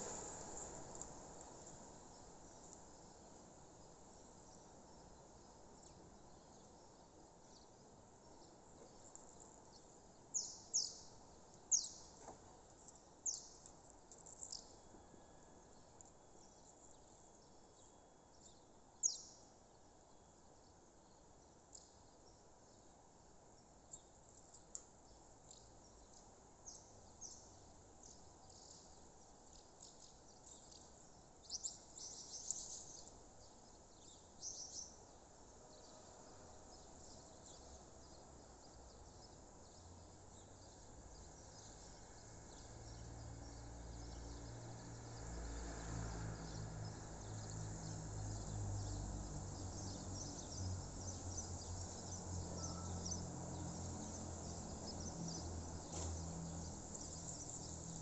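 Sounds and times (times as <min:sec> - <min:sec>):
birds chirping: 0:49.8 - 0:57.8.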